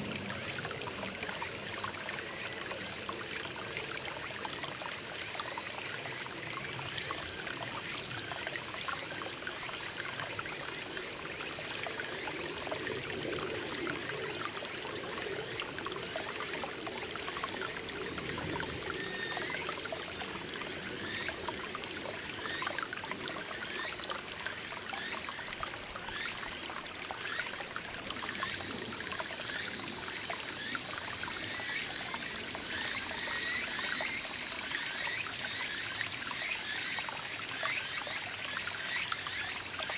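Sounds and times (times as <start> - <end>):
high-pitched insect drone: 0.0 - 19.8, 28.6 - 39.9
stream babbling over rocks: 0.0 - 39.9.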